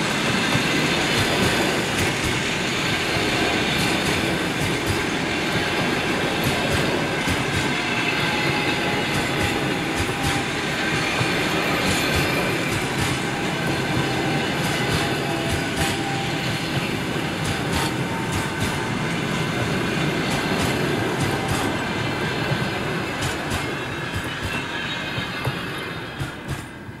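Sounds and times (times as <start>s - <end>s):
train wheels rumbling: 0.0s - 27.0s
sharp clicks over track: 11.8s - 16.0s.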